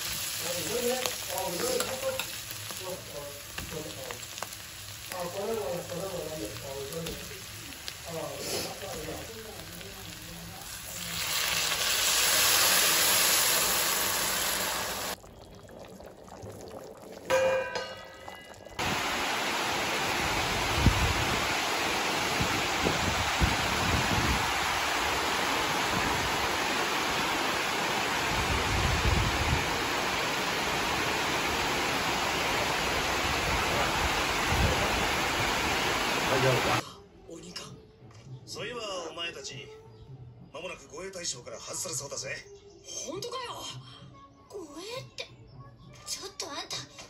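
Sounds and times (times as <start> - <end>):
water hissing in hot pan: 0.0 - 36.8
heavy rain falling: 18.8 - 36.8.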